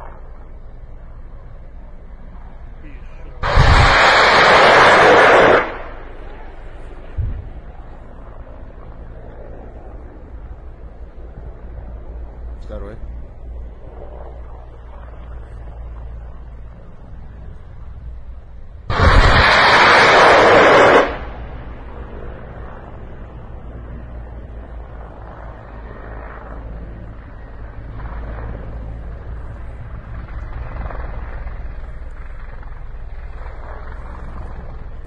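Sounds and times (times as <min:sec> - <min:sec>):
steady low rumble: 0:00.0 - 0:35.0
rockets firing roar: 0:03.3 - 0:06.4, 0:18.8 - 0:22.0.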